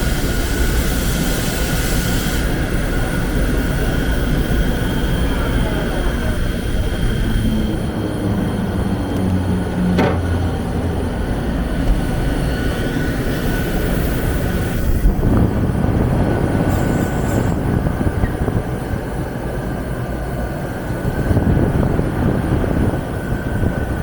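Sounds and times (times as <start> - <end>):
lathe running with high whine: 0.0 - 21.2.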